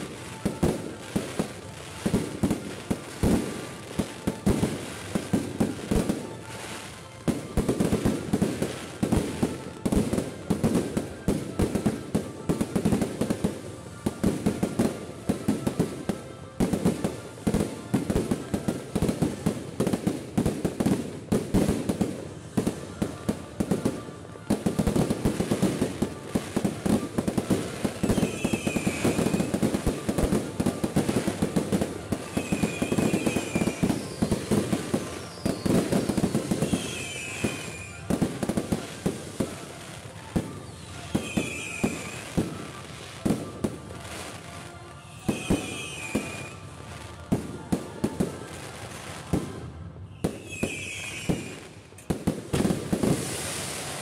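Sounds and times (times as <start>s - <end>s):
fireworks bursting and crackling: 0.0s - 54.0s
high firework whistles: 23.8s - 43.5s, 45.1s - 46.7s, 50.0s - 54.0s.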